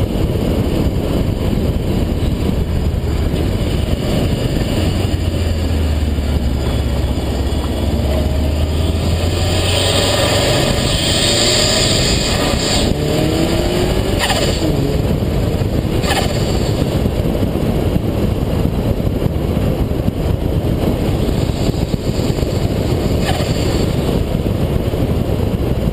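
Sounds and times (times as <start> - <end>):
road and wind noise: 0.0 - 25.9
car engine revving: 1.1 - 17.2, 21.1 - 24.3
turbo flutter: 15.8 - 17.1, 21.1 - 24.5.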